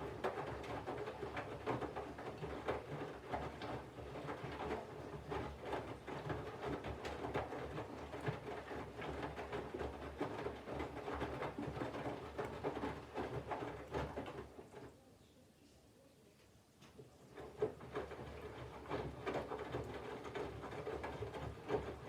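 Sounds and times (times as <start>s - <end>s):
washing machine motor hum: 0.0s - 14.8s, 17.3s - 22.0s
wet laundry tumbling and sloshing: 0.0s - 14.8s.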